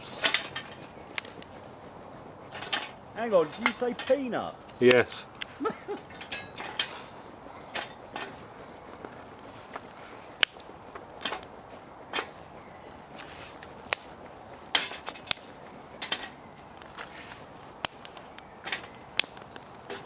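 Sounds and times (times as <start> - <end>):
steady low hiss: 0.0 - 20.0.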